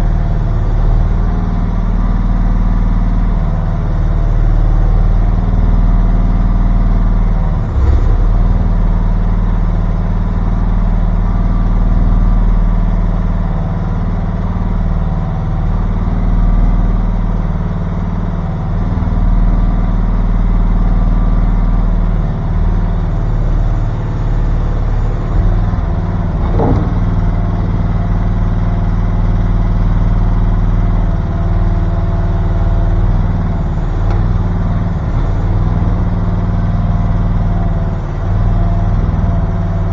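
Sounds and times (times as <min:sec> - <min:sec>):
mini excavator engine running: 0:00.0 - 0:39.9
brief knock: 0:25.4 - 0:27.8.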